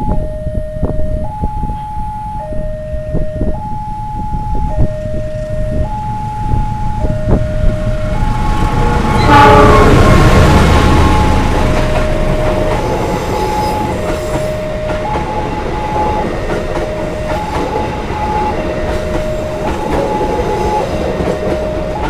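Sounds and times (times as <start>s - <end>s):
two-tone warning alarm: 0.0s - 22.0s
train rumble passing: 3.0s - 22.0s
train horn blast: 8.1s - 14.6s.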